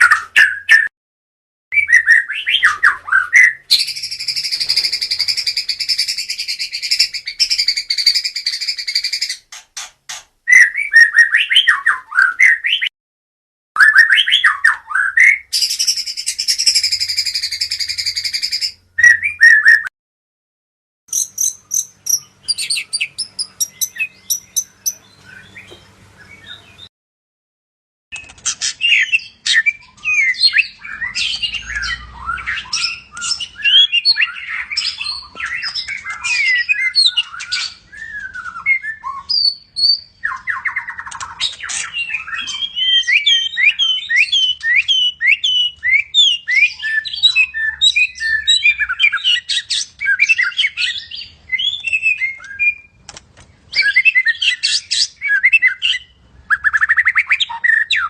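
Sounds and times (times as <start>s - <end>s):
songbird singing whistles: 0.0s - 0.9s, 1.7s - 9.4s, 10.5s - 12.9s, 13.8s - 19.9s, 21.1s - 26.9s, 28.8s - 53.0s, 53.7s - 58.0s.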